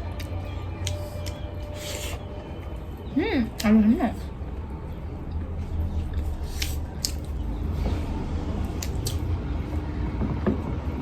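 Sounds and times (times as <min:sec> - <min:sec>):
wet chewing: 0:00.0 - 0:02.3, 0:06.0 - 0:07.4, 0:08.7 - 0:09.3
mouth clicks and smacks: 0:06.5 - 0:07.4, 0:08.8 - 0:09.3.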